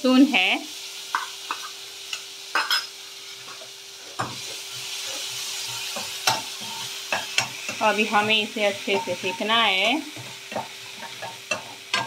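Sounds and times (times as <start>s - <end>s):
food sizzling in hot oil: 0.0s - 12.0s
spoon scraping a metal pan: 2.5s - 12.0s.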